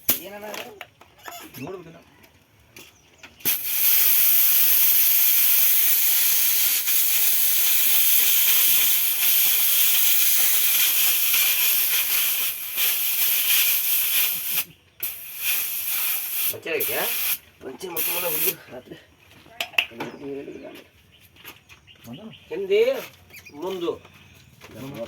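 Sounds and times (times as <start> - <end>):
compressed air hissing: 3.4 - 17.4, 18.0 - 18.7.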